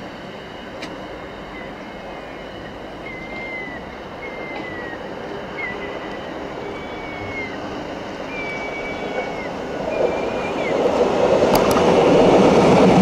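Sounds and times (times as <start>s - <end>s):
train wheels rumbling on rail: 0.0s - 13.0s
high-pitched wheel squeals: 1.6s - 10.8s.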